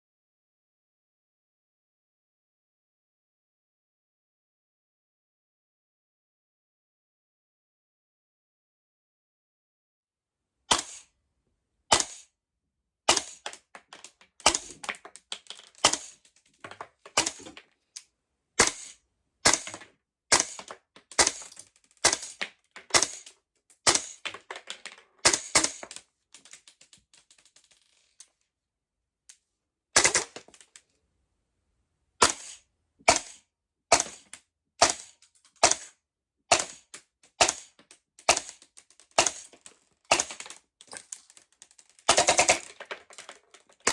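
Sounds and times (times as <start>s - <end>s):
airsoft gun shots: 10.7s - 11.1s, 11.9s - 12.3s, 13.1s - 13.5s, 14.4s - 14.8s, 15.8s - 16.2s, 18.6s - 23.3s, 23.9s - 24.2s, 25.2s - 25.8s, 30.0s - 30.4s, 32.2s - 35.9s, 36.5s - 37.7s, 38.3s - 38.6s, 39.2s - 39.5s, 40.1s - 40.4s.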